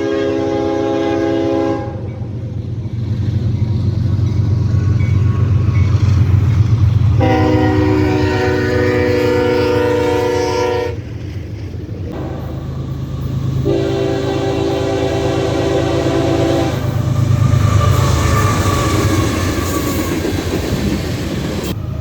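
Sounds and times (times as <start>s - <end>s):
locomotive horn chord: 0.0s - 2.2s, 7.2s - 11.0s, 12.2s - 18.9s
locomotive low rumble: 0.0s - 22.0s.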